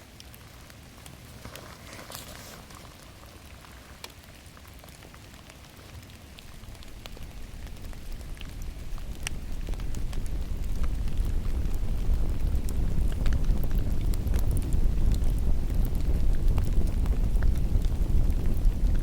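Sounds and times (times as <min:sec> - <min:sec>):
rain patter in forest: 0:00.0 - 0:19.0
sharp water drips: 0:00.0 - 0:19.0
low rumble: 0:06.6 - 0:19.0.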